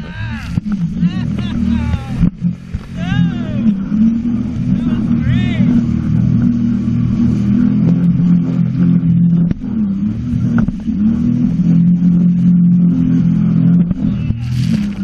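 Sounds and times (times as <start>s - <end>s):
jet ski engine under throttle: 0.0s - 15.0s.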